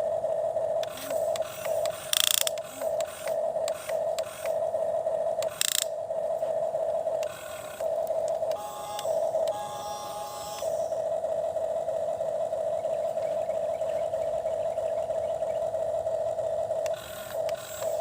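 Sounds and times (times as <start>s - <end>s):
sharp clicks: 0.8s - 4.6s, 5.4s - 6.0s, 7.2s - 9.7s, 16.8s - 18.0s
toy motor whirring: 0.8s - 4.6s, 5.4s - 6.0s, 7.2s - 11.0s, 16.8s - 18.0s.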